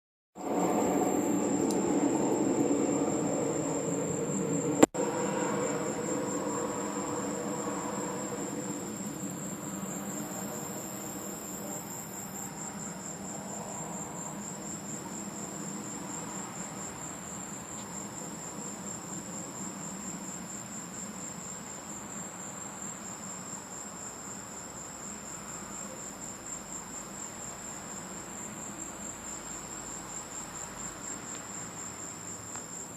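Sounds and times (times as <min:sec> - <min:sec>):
low rumble: 0:00.4 - 0:10.7
crickets chirping: 0:00.4 - 0:32.9.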